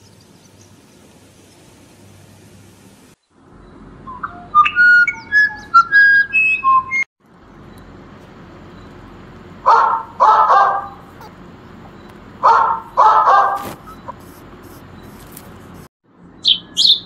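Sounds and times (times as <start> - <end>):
whistled notes: 4.0 - 7.1
dog barking: 9.6 - 14.1.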